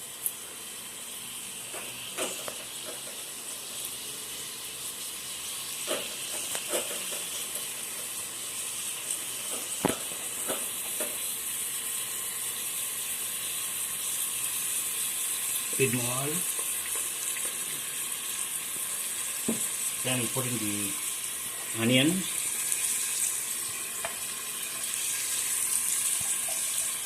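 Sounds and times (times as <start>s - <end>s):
spices sizzling in hot oil: 0.0s - 27.0s
sharp pops and clicks: 9.6s - 11.2s.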